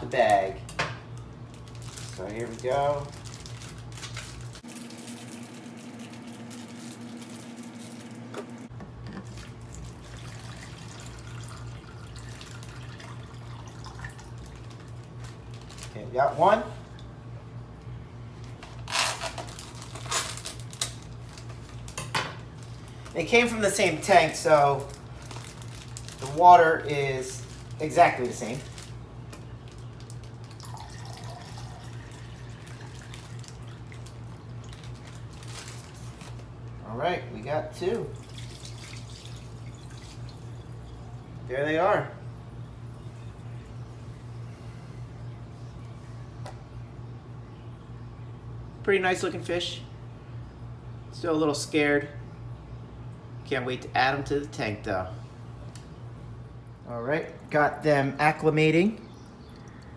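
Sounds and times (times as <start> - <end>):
steady low hum: 0.0 - 59.9
water sloshing and dripping: 9.2 - 15.6, 30.0 - 36.4, 38.1 - 41.0, 59.2 - 59.9.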